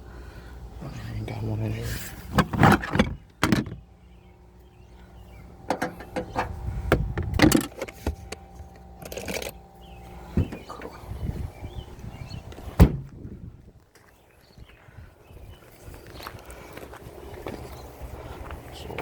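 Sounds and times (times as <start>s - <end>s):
faint steady hum: 0.0s - 19.0s
tools knocking and rattling: 2.4s - 3.8s, 5.7s - 8.3s, 9.0s - 9.6s.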